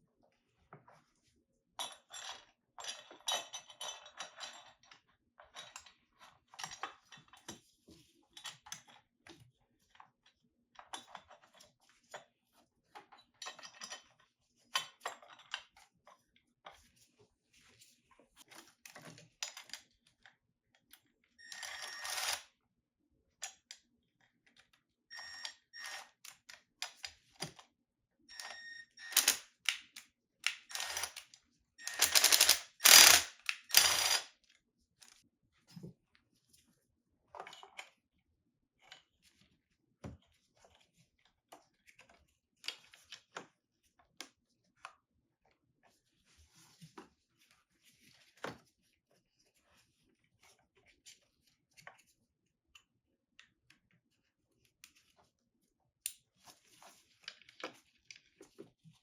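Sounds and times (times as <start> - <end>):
hand tools clicking and clinking: 31.8 - 34.2
socket ratchet clicking: 31.9 - 34.2.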